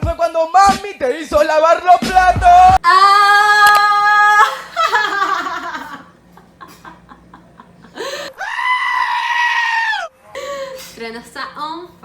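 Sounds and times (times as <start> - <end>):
high-pitched vocal cry: 2.8 - 5.0.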